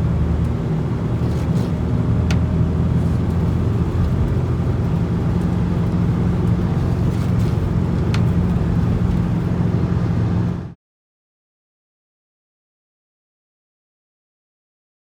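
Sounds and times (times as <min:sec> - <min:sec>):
diesel engine droning: 0:00.0 - 0:10.8.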